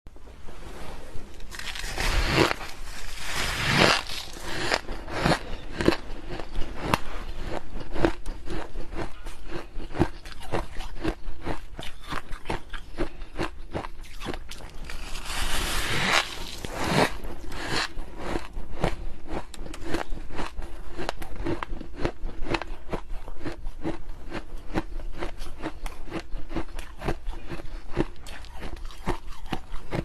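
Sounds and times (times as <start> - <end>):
frost being chewed and crunched: 1.4 - 30.0.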